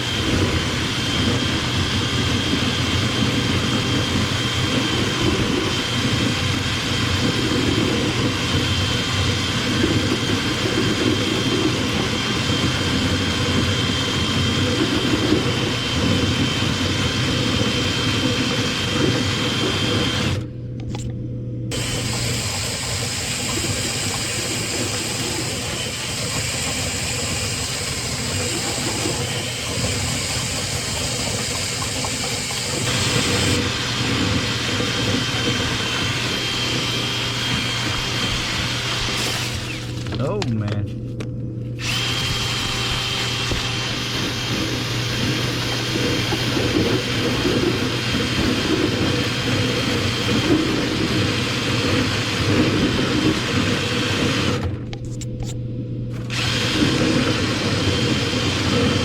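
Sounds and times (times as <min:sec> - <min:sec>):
cleaning equipment motor running: 0:00.0 - 0:21.0, 0:21.7 - 0:40.6, 0:41.8 - 0:55.5, 0:56.1 - 0:59.0.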